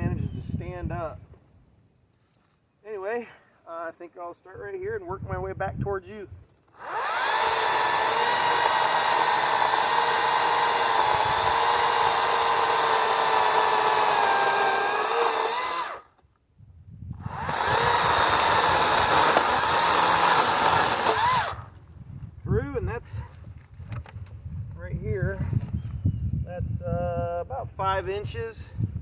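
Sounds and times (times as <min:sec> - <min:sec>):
chainsaw cutting log: 0:06.7 - 0:16.2, 0:17.2 - 0:21.8.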